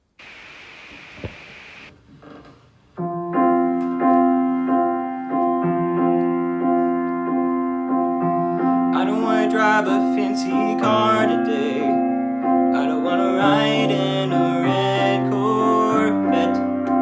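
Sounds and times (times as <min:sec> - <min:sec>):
steady hiss: 0:00.0 - 0:01.9
piano repeating chord: 0:03.0 - 0:17.0.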